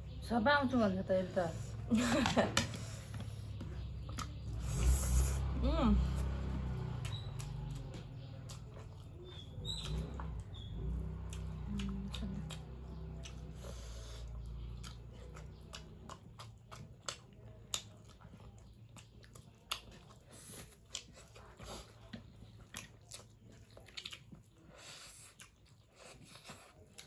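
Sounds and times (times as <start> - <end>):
chewing and biting food: 2.5 - 27.0.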